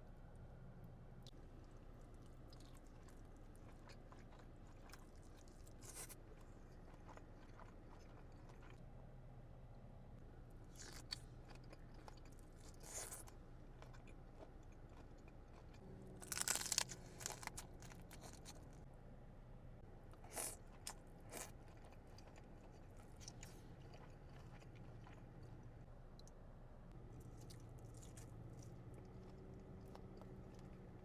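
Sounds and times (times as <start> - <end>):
faint low hum: 0.0 - 31.0
crunchy bites and chewing: 1.9 - 8.8, 10.6 - 18.8, 20.1 - 25.6, 27.0 - 31.0.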